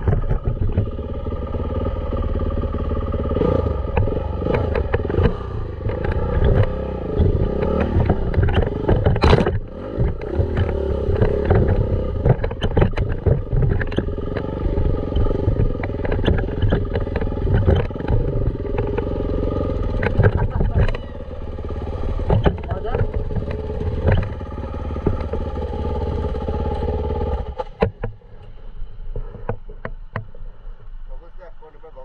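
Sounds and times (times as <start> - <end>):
dirt bike engine running: 0.0 - 31.3
heavy low rumble: 0.0 - 32.0
clattering knocks from bike: 3.9 - 14.5, 15.2 - 19.1, 22.2 - 25.6.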